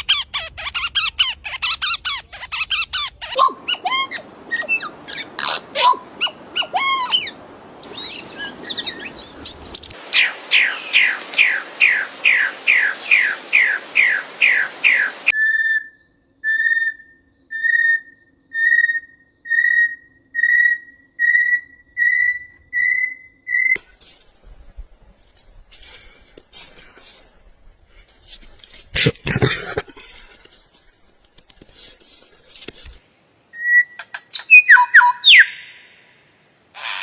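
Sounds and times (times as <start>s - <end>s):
birds chirping: 0.3s - 15.3s, 33.6s - 36.1s
clear whistled bird notes: 3.3s - 23.8s, 33.5s - 36.1s.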